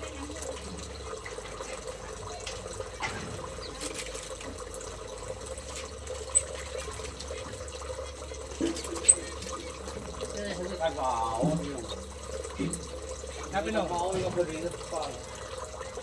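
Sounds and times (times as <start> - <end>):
water trickling: 0.0 - 16.0
small birds chirping: 3.5 - 4.2.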